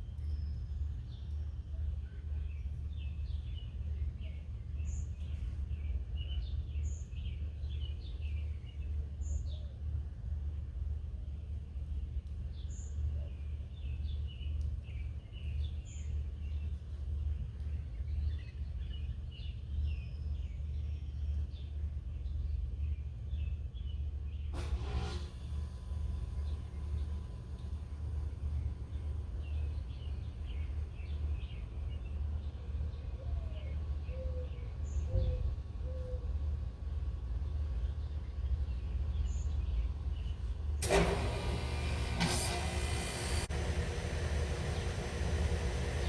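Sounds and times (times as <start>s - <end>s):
low background rumble: 0.0s - 46.0s
small birds chirping: 25.7s - 40.8s, 41.4s - 46.0s.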